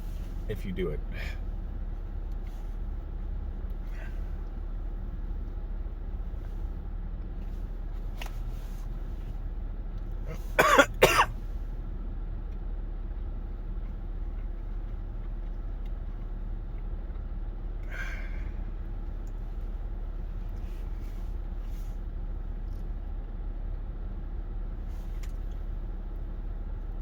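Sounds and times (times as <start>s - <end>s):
steady low hum: 0.0s - 27.0s
person coughing: 10.3s - 11.3s.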